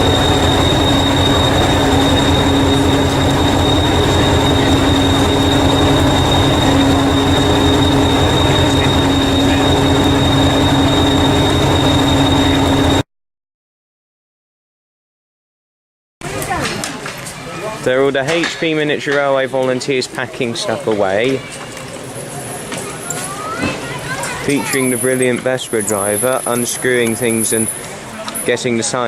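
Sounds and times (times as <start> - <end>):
train running: 0.0 - 13.0, 20.2 - 29.0.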